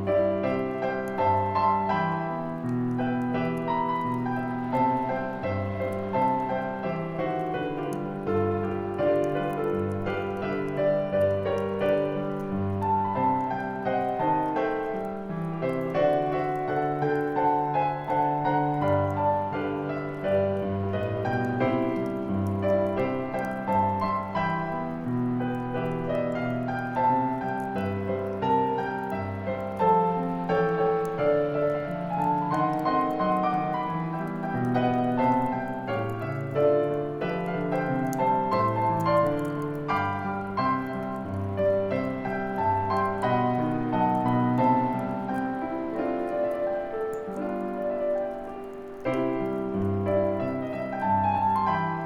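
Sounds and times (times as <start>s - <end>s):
gentle solo piano: 0.0s - 52.0s.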